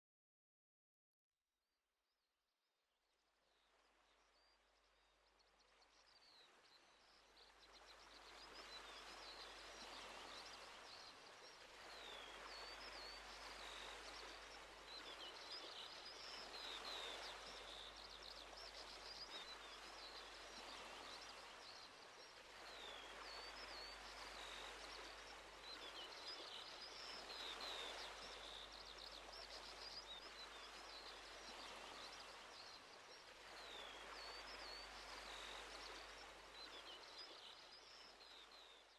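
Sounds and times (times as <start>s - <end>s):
waves washing in: 8.1s - 38.1s.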